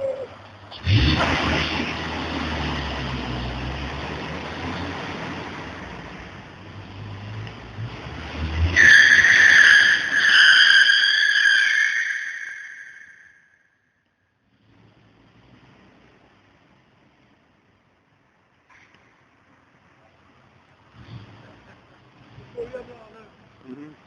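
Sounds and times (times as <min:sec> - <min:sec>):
tire squeal: 0:08.2 - 0:13.7.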